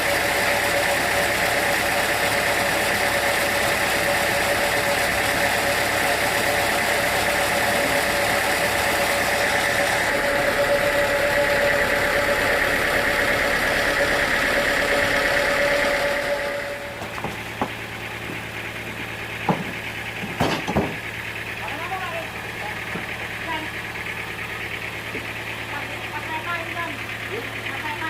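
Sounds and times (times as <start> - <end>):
high-pitched whine: 0.0 - 19.3
sawmill machinery running: 0.0 - 28.0.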